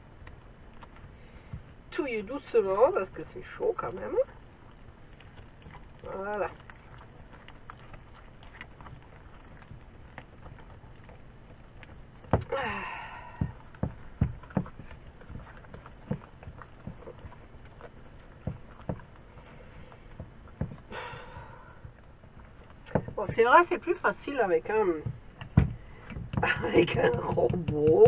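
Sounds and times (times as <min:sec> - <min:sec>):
hands squeezing dough in bowl: 0:00.0 - 0:28.0
rings knocking against bowl: 0:25.0 - 0:28.0.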